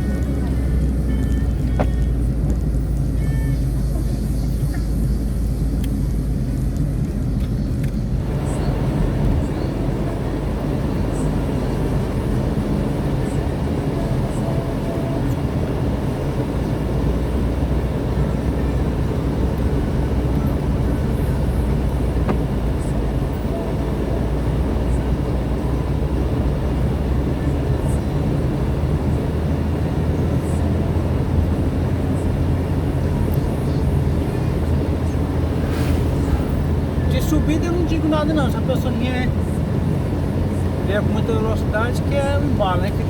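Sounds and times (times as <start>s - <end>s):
car engine and road rumble: 0.0s - 43.0s
broad rushing noise: 30.4s - 40.4s.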